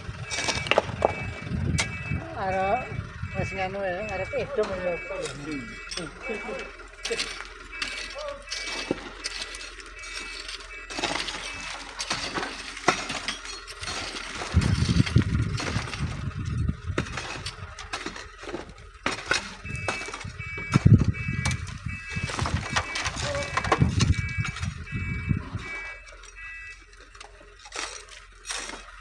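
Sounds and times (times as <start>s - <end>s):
wind rumble on microphone: 0.0s - 4.8s, 13.8s - 17.8s, 19.6s - 25.8s
stones and gravel clinking: 0.0s - 29.0s.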